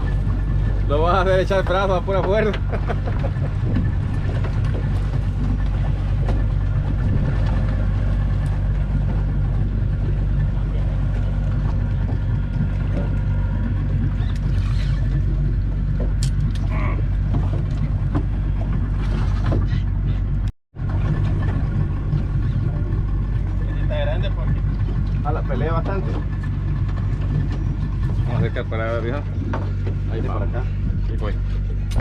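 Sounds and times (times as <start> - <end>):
boat engine humming: 0.0 - 32.0.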